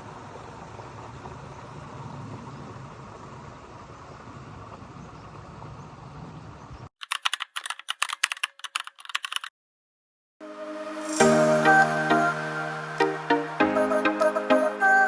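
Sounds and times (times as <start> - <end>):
keyboard typing clicks: 7.0 - 9.5
music: 10.4 - 15.0.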